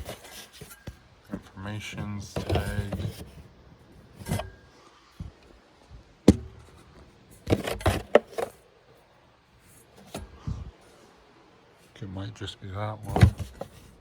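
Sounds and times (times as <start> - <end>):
handling clicks and knocks: 2.2 - 3.4, 13.0 - 14.0.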